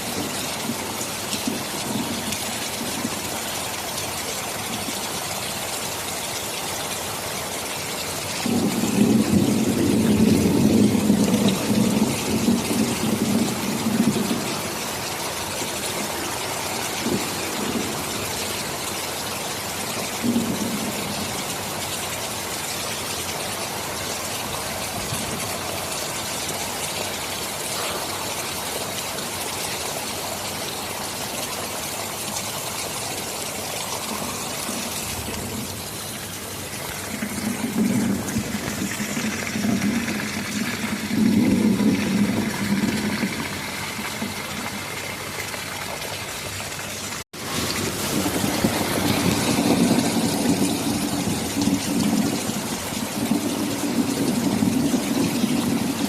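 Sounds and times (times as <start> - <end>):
thunder rumbling: 0.0 - 4.1, 8.4 - 18.9, 19.8 - 21.6, 33.8 - 45.2, 47.4 - 56.0
heavy rain: 0.0 - 56.0.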